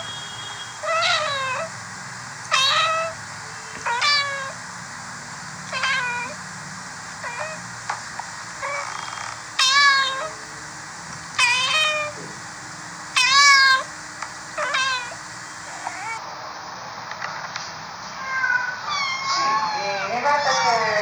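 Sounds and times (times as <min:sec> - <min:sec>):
cats meowing: 0:00.8 - 0:01.8, 0:02.5 - 0:04.6, 0:05.7 - 0:06.4, 0:07.2 - 0:07.6, 0:08.6 - 0:10.5, 0:11.4 - 0:12.4, 0:13.1 - 0:13.9, 0:14.5 - 0:16.2, 0:18.0 - 0:21.0.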